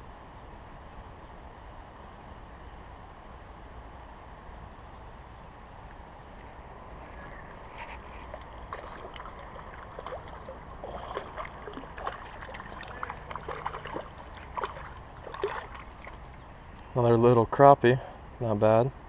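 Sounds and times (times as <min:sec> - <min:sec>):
creek water running: 0:07.0 - 0:17.0
fish splashing: 0:08.0 - 0:16.4.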